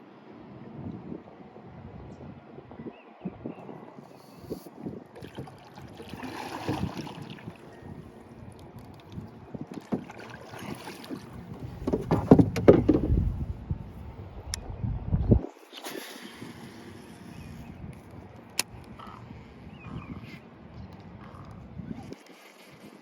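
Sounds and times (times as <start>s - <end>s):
wind buffeting microphone: 0.6s - 15.6s, 17.3s - 23.0s
water sloshing against boat: 4.2s - 14.2s
sharp knocks: 11.8s - 13.2s.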